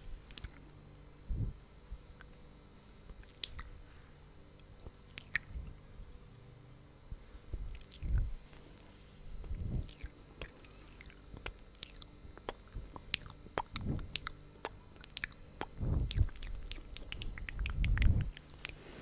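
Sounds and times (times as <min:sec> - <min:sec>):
tongue clicks: 0:02.9 - 0:03.7, 0:09.6 - 0:18.8
sticky lip smacks: 0:09.6 - 0:18.8.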